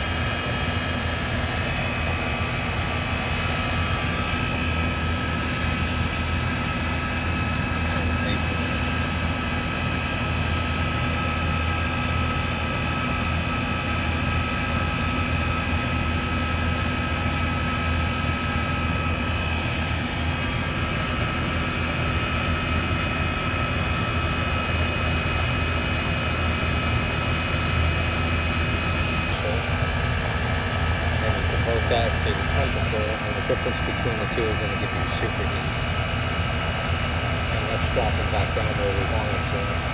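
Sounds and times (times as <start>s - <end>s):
compressor low hum: 0.0s - 39.9s
condenser fan air rushing: 27.0s - 39.9s.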